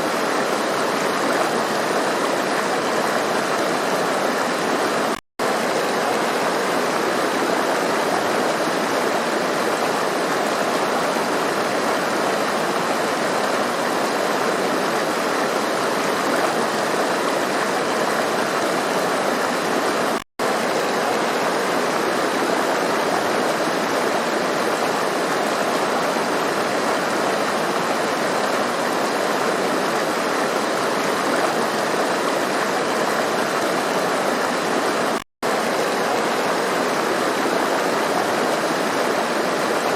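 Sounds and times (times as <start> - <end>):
stream splashing over rocks: 0.0 - 39.9.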